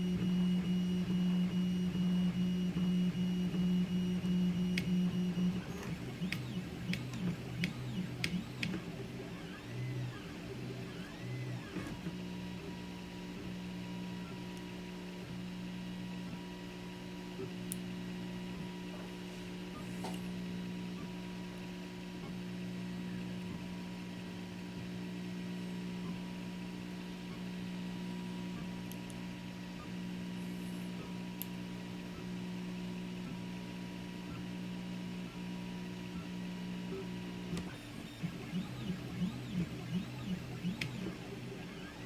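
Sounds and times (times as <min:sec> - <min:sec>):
printer stepper motors humming: 0:00.0 - 0:21.1, 0:35.2 - 0:42.0.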